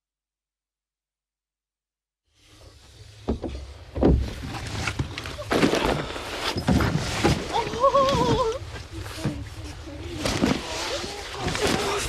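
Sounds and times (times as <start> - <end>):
rustling: 2.5 - 12.0
irregular thumps: 3.2 - 9.5.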